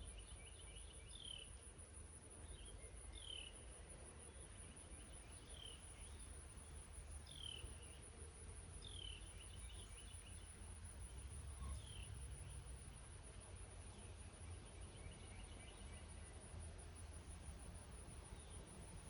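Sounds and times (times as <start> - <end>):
high insect trill: 8.8 - 13.1.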